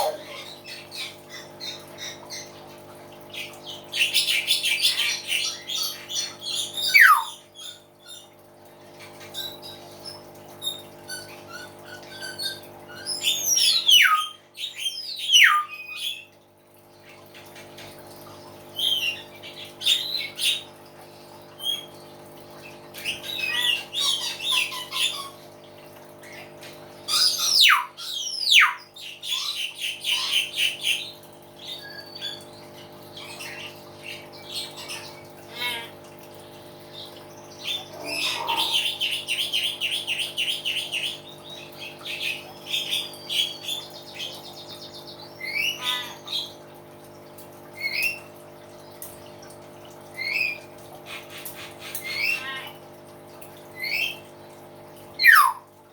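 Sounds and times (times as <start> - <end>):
myna squawking and whistling: 6.8 - 7.4, 13.5 - 14.4, 15.2 - 15.7, 27.2 - 28.8, 55.2 - 55.7.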